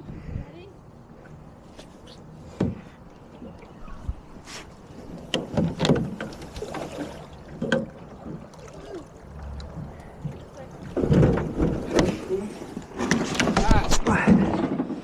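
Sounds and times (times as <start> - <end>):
knocks and thumps on a boat: 5.0 - 8.5, 9.7 - 15.0.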